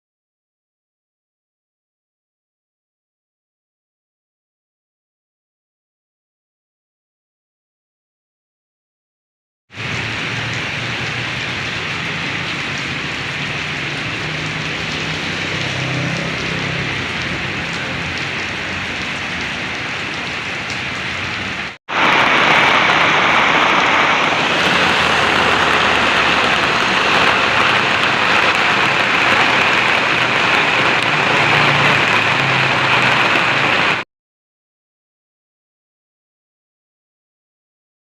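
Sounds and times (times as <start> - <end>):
heavy rain falling: 9.7 - 34.1.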